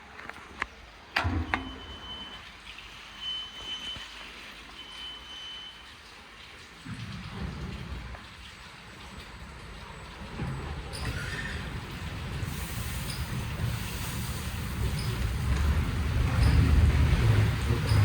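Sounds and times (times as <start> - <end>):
low mechanical rumble: 9.6 - 18.0
water spray hissing: 12.2 - 18.0.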